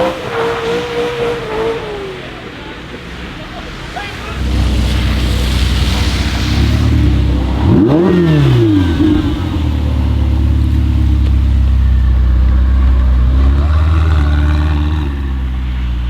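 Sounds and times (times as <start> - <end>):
low engine rumble: 0.0 - 16.0
sports car engine revving: 0.0 - 16.0.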